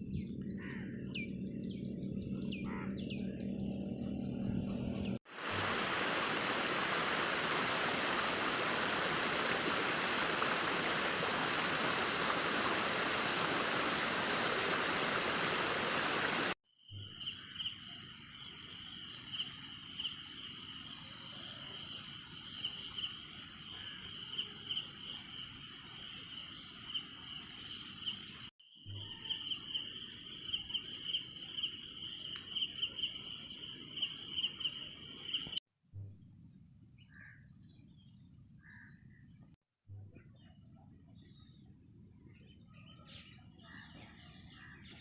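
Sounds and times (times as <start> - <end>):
loud high insect trill: 5.4 - 35.4
insects trilling: 5.4 - 38.8.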